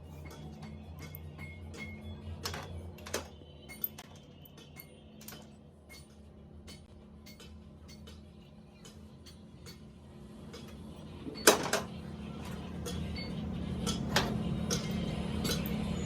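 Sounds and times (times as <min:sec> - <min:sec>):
tools clicking on metal parts: 0:00.2 - 0:09.9, 0:10.5 - 0:16.0.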